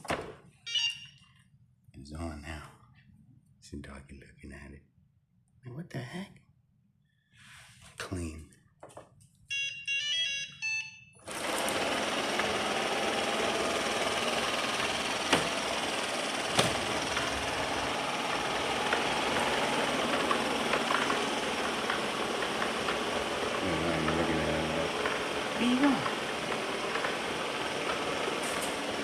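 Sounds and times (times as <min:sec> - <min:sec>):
electronic beeps: 0:00.7 - 0:01.2, 0:09.5 - 0:11.2
robot vacuum motor and brushes: 0:11.3 - 0:29.0
sharp knocks: 0:16.4 - 0:17.5.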